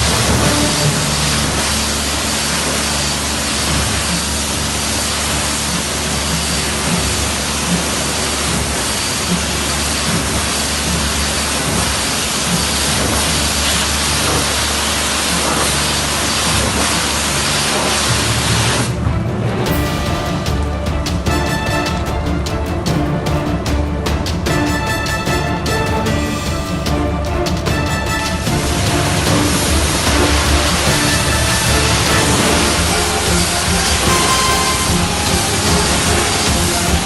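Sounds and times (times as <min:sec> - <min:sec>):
pressure washer spraying: 0:00.0 - 0:18.9, 0:28.2 - 0:37.0.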